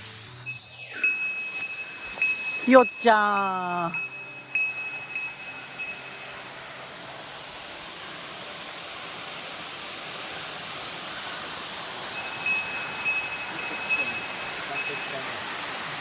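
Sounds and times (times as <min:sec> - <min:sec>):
waterfall rushing: 0:00.0 - 0:16.0
small bell jingling: 0:00.4 - 0:06.3, 0:12.2 - 0:15.5.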